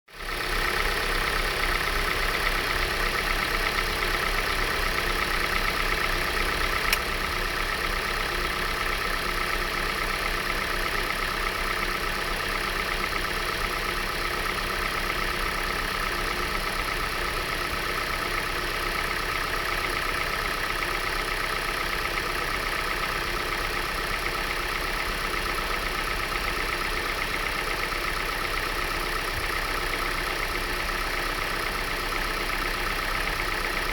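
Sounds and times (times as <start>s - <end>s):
car engine idling with ticking: 0.1s - 33.9s
sharp click: 6.9s - 7.1s.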